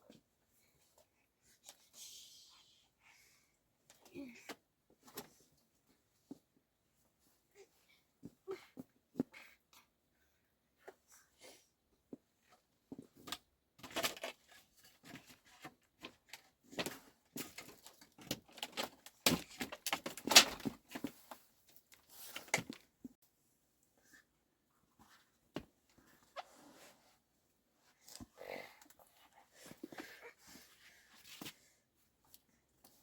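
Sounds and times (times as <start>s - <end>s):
objects knocking and clattering: 13.0s - 21.4s.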